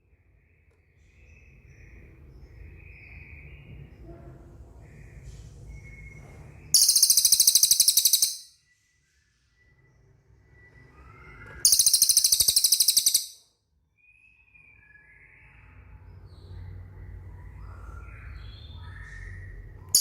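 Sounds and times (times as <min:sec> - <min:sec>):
soft bird chirps: 0:00.0 - 0:20.0
bird high-pitched trills: 0:06.8 - 0:08.6, 0:11.1 - 0:13.5.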